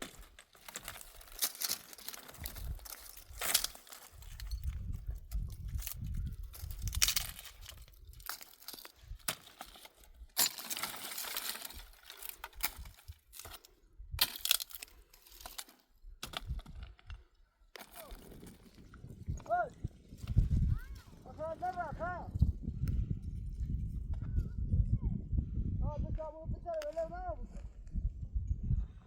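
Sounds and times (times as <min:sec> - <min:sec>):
dry branches snapping: 0:00.0 - 0:18.8.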